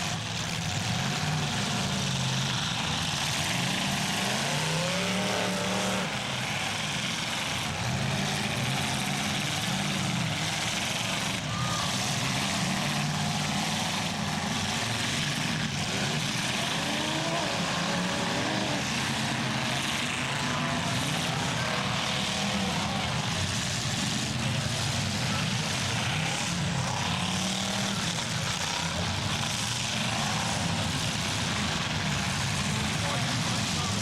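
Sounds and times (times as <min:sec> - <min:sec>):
car engines droning: 0:00.0 - 0:34.0
faint voice: 0:11.2 - 0:12.8.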